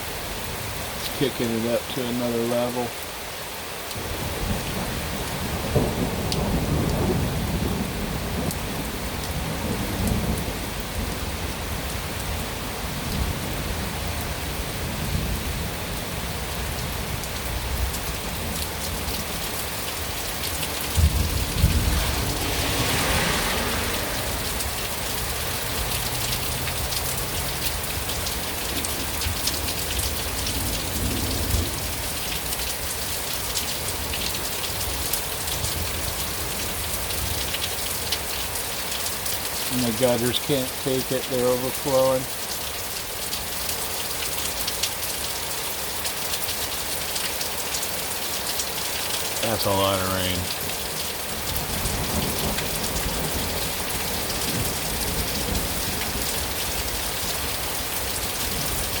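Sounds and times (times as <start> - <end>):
heavy rain pouring: 0.0 - 59.0
thunder clap: 4.0 - 11.2, 20.0 - 26.7
thunder rumbling: 4.0 - 11.9, 16.6 - 32.7, 51.3 - 59.0.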